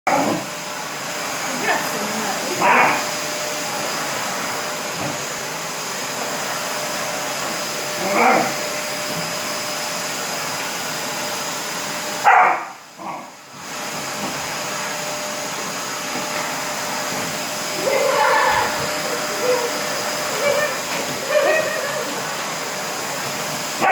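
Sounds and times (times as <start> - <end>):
vacuum cleaner running: 0.1 - 23.9
puppy barking: 2.6 - 3.0, 8.0 - 8.6, 12.2 - 13.2, 17.9 - 22.2.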